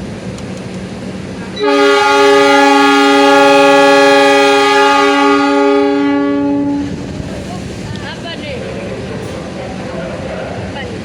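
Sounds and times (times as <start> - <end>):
train horn blast: 1.6 - 7.0.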